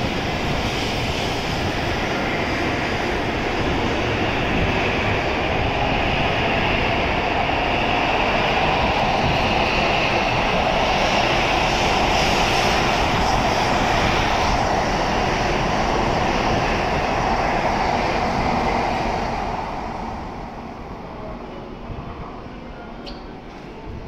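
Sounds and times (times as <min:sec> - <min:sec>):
high-speed train rushing past: 0:00.0 - 0:24.0.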